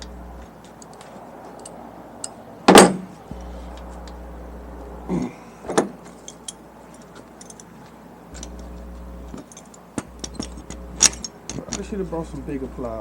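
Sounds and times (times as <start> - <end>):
louder knocks: 2.7 - 3.1.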